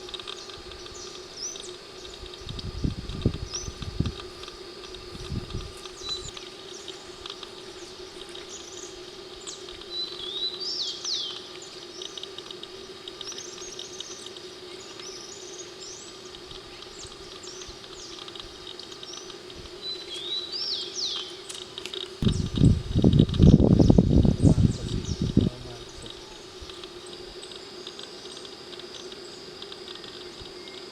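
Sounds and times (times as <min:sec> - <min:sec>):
birds chirping: 0:00.0 - 0:30.9
steady low hum: 0:00.0 - 0:30.9.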